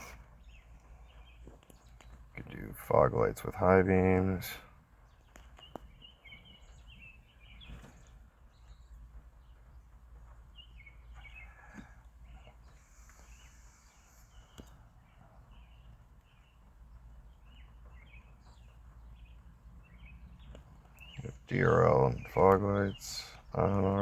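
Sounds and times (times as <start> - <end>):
faint clicks: 0.0 - 2.6, 5.3 - 6.0, 11.1 - 16.4, 20.4 - 21.5
birds chirping: 0.0 - 24.0.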